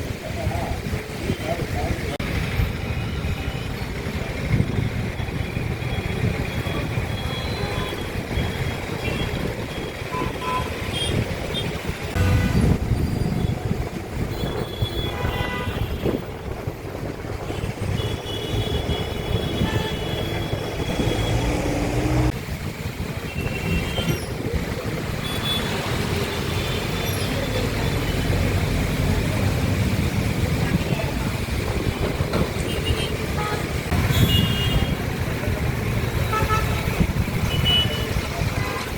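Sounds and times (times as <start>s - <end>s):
road traffic rumbling: 0.0s - 38.9s
vehicle horns: 7.0s - 13.6s, 14.2s - 16.3s, 17.4s - 22.3s, 32.6s - 35.1s, 36.2s - 38.9s.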